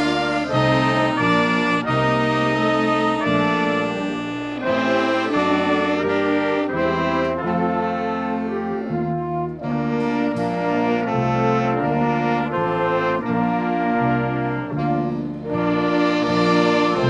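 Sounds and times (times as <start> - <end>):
brass ensemble playing chords: 0.0 - 17.0.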